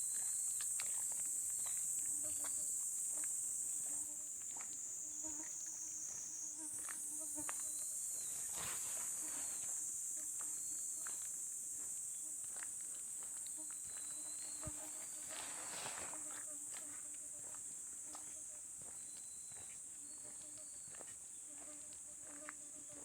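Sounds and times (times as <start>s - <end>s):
crickets and insects chirping: 0.0s - 23.0s
soft footsteps: 6.1s - 22.6s.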